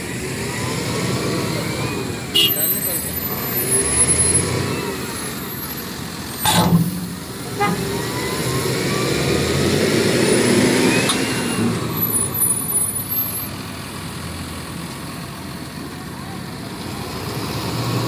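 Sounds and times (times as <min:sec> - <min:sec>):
diesel engine under load: 0:00.0 - 0:18.0
steel bars clanking: 0:06.4 - 0:08.2.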